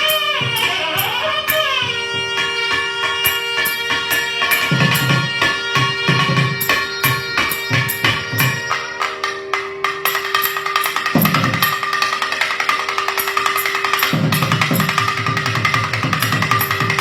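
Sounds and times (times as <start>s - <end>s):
reed ensemble melody over drone: 0.0s - 17.0s
fast hand drumming: 10.1s - 17.0s.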